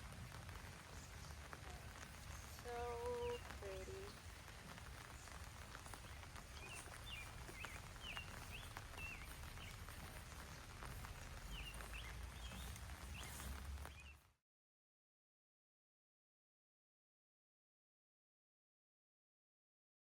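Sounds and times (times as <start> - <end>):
small birds chirping: 0.0 - 14.3.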